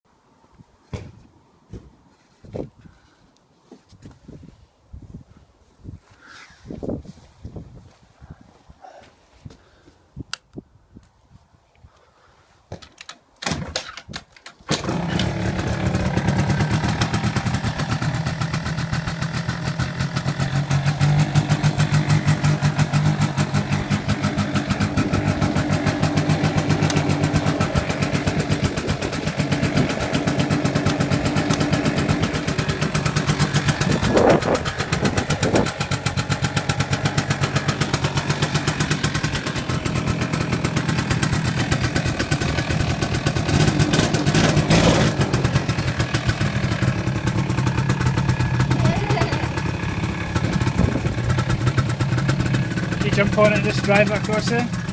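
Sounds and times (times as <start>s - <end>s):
quad bike engine idling and revving: 14.7s - 54.9s.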